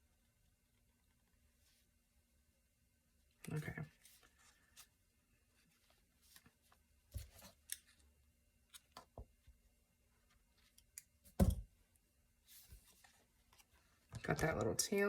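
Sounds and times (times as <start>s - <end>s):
hands handling string: 5.6s - 8.1s.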